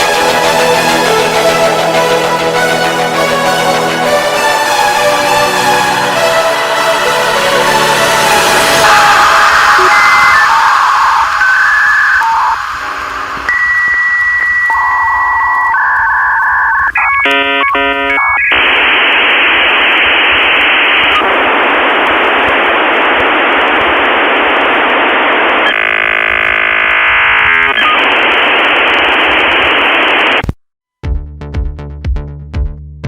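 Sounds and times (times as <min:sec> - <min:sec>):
fast electronic warbling: 0:08.2 - 0:13.0
electronic beeps: 0:08.8 - 0:18.7, 0:25.6 - 0:28.1.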